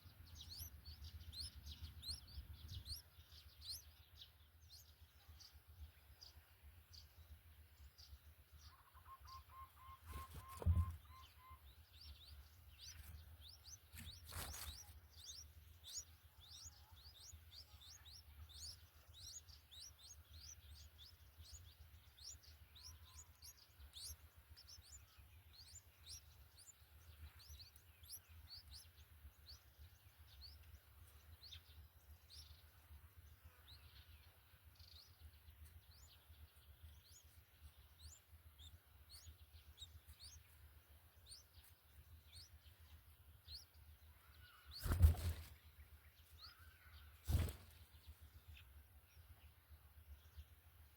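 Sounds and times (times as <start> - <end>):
high-pitched bird chirping: 0.0 - 5.5, 8.7 - 29.6.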